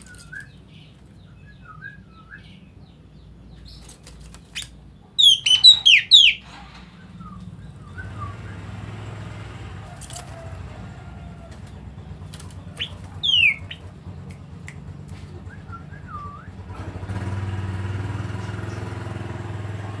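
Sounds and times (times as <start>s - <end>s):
low engine hum: 0.0s - 20.0s
bird calling: 3.6s - 8.8s, 9.8s - 16.6s.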